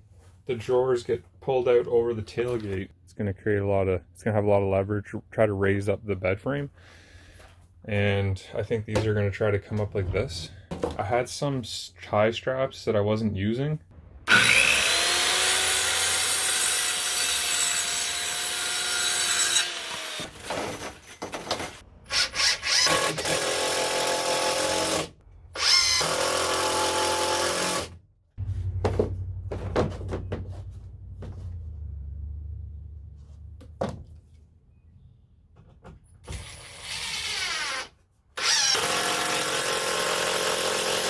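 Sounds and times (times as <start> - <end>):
power drill driving screws: 14.3 - 20.8, 22.1 - 27.9, 36.2 - 41.0
knocks: 28.4 - 31.5
low hum: 28.4 - 33.6.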